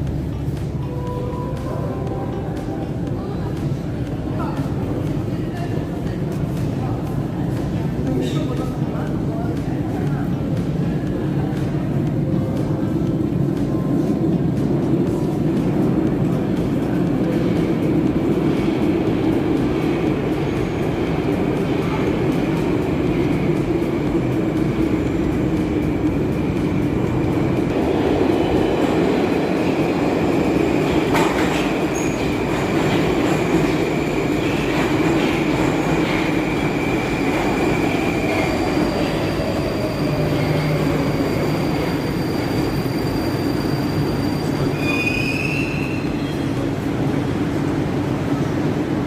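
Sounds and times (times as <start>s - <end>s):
metro train rumbling: 0.0s - 49.0s
short high squeal: 41.4s - 46.4s.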